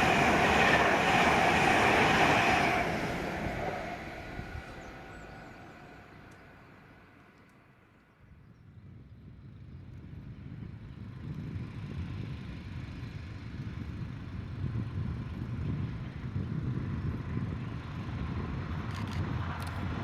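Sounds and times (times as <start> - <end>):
train rumbling: 0.0 - 7.4.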